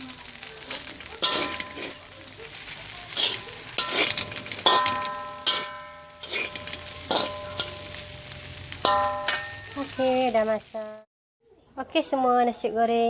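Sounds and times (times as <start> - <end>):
rice sizzling in a pan: 0.0 - 11.1
metal spatula striking a pan: 0.8 - 10.3.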